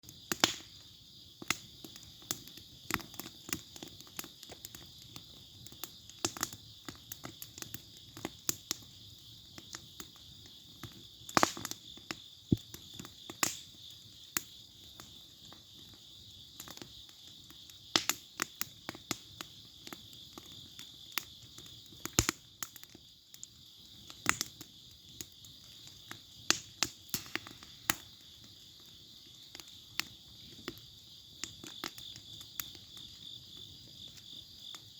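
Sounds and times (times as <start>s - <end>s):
insects chirping: 0.0s - 34.9s
wood bonfire crackling: 0.0s - 34.9s.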